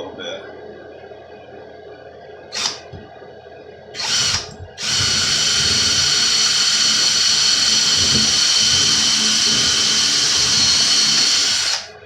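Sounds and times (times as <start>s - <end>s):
power drill boring into wood: 2.6s - 2.9s, 4.0s - 12.0s.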